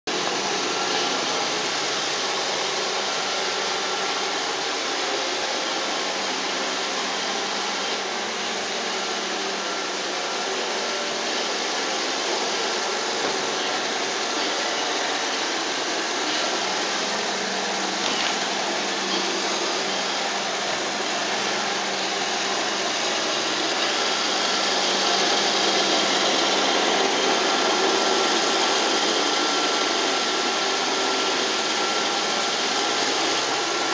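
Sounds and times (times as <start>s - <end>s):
robot vacuum whirring: 8.6s - 33.9s.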